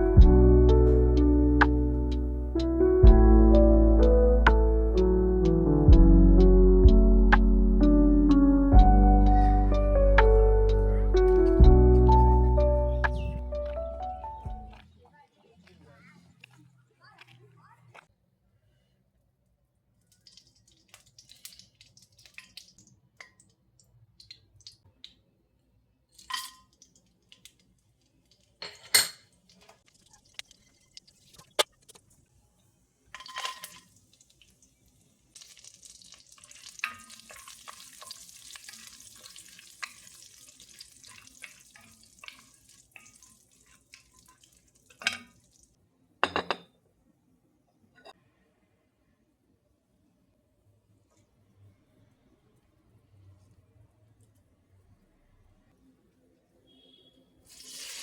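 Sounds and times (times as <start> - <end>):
dishes and utensils clinking: 26.2 - 26.7, 28.6 - 29.4, 46.2 - 46.8.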